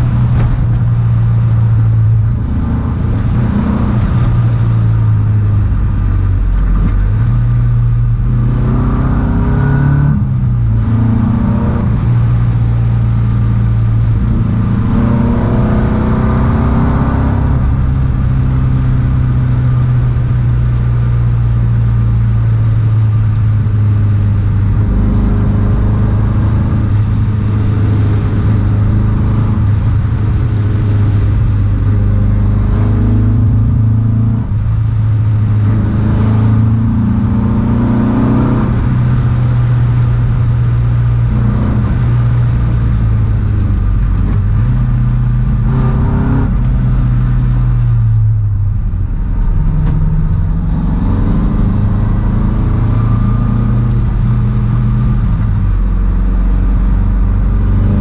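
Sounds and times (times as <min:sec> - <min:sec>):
car engine accelerating: 0:00.0 - 0:58.0
steady low drone: 0:00.0 - 0:58.0.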